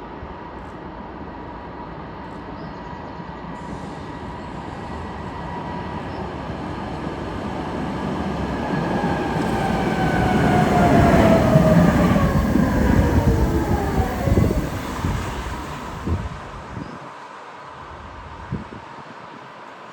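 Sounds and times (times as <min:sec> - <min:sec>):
tram wheels rumbling on rails: 0:03.2 - 0:17.0
tram motor whine: 0:04.0 - 0:16.8.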